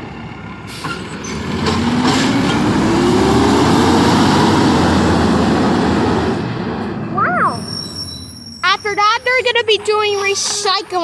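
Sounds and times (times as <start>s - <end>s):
garbage truck engine revving: 0.0s - 7.8s.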